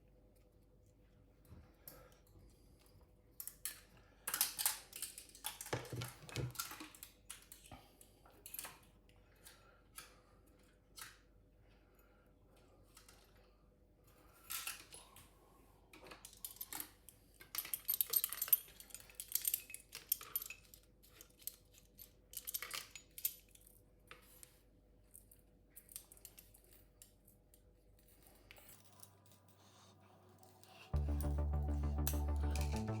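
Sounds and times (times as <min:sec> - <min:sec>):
metal parts clinking: 0:17.6 - 0:23.6.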